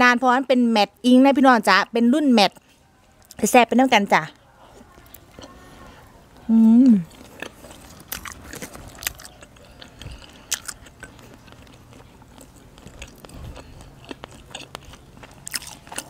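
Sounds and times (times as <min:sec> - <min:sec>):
wet chewing clicks and smacks: 0:07.1 - 0:16.0.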